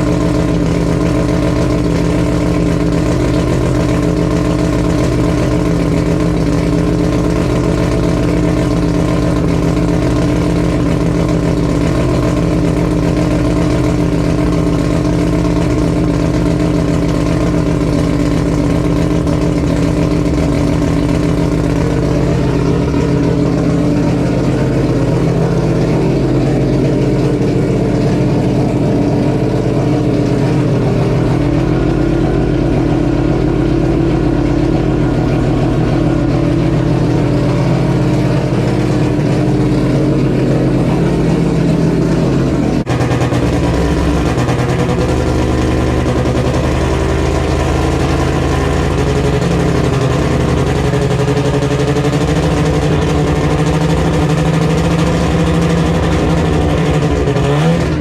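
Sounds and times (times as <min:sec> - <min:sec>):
race car engine idling: 0:00.0 - 0:58.0.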